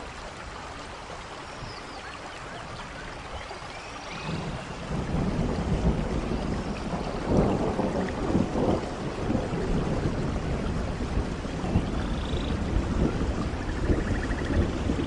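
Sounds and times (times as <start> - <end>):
rain falling in a forest: 0.0 - 15.0
low rumble of thunder: 4.0 - 15.0.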